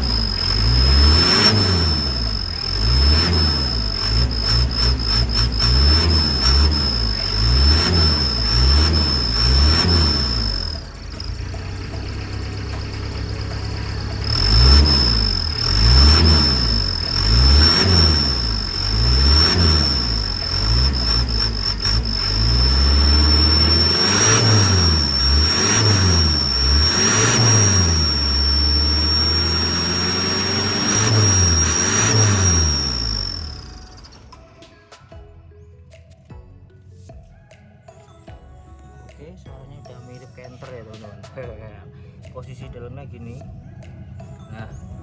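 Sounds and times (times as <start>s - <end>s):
diesel engine revving: 0.0s - 34.3s
exhaust whistle: 0.0s - 34.3s.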